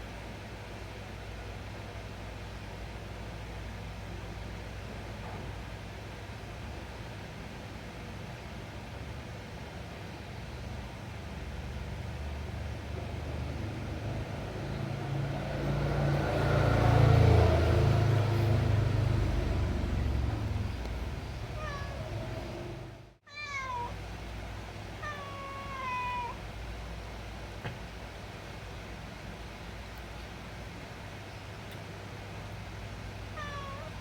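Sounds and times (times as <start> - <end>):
cat meowing: 21.3 - 24.0, 25.0 - 26.4, 33.3 - 34.0.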